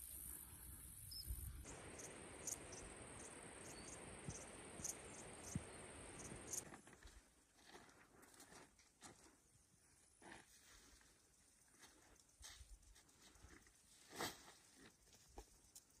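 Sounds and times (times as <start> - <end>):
insects chirring: 0.0 - 6.7.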